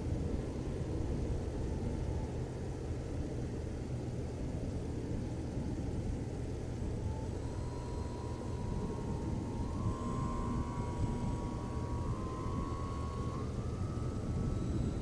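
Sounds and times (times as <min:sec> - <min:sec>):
faint thin whine: 0:07.0 - 0:15.0.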